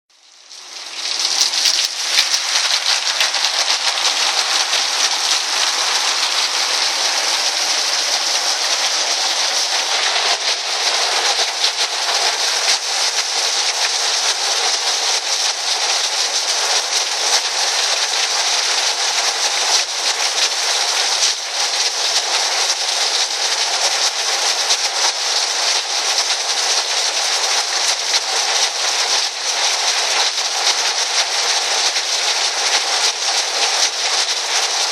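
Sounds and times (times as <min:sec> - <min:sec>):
heavy rain on a tin roof: 0:00.2 - 0:34.9.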